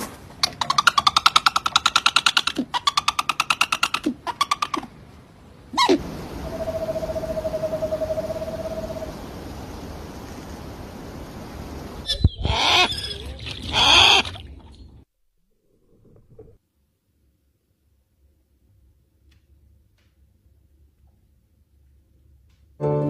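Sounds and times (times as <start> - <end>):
bird of prey rattling calls: 0.4 - 4.9, 5.8 - 9.4
bird trilling: 0.6 - 4.9, 5.8 - 9.5.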